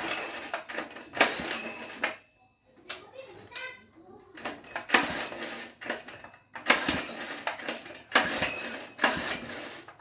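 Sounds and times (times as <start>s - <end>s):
metal tools clinking and scraping: 0.0s - 2.2s, 4.4s - 10.0s.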